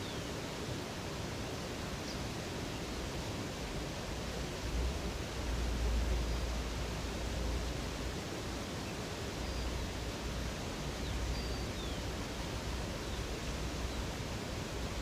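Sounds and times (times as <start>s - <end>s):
rushing river water: 0.0s - 15.0s.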